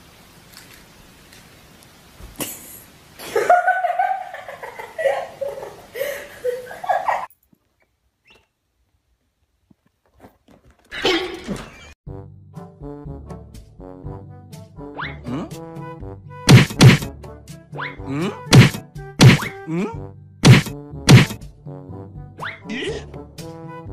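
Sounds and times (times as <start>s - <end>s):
person laughing: 2.4s - 7.3s, 18.1s - 18.5s, 19.6s - 20.0s, 22.7s - 23.1s.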